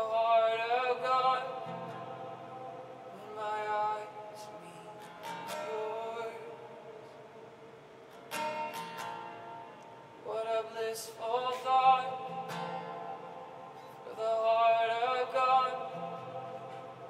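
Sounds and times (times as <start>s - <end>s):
acoustic guitar strum: 0.0s - 7.2s, 8.1s - 17.0s
person singing wordless phrases: 0.0s - 7.2s, 10.2s - 13.2s, 13.9s - 17.0s.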